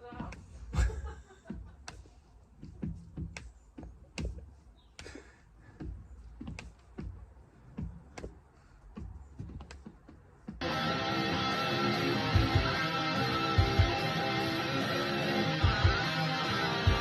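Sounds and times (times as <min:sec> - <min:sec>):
light taps and knocks: 0:00.0 - 0:10.6.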